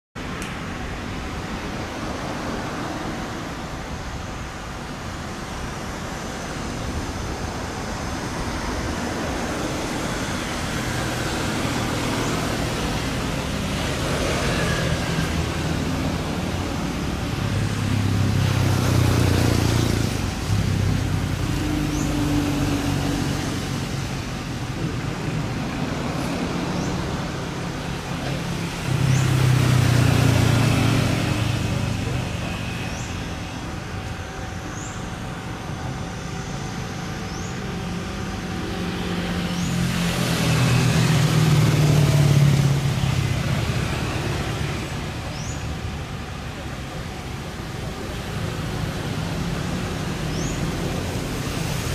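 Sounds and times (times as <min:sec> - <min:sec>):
motor vehicles passing: 0:00.2 - 0:51.9
traffic hum: 0:00.2 - 0:51.9.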